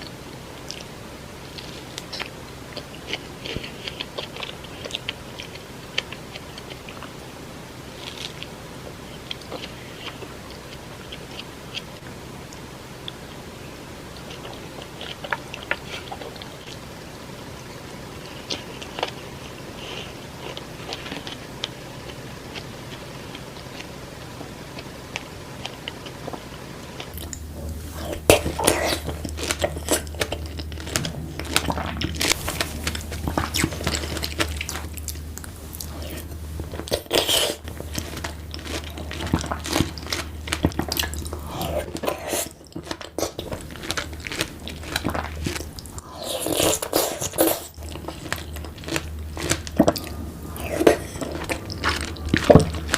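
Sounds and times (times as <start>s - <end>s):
low hum: 0.0s - 46.9s, 47.7s - 52.9s
juicy bites and chewing: 8.0s - 13.3s, 17.7s - 52.9s.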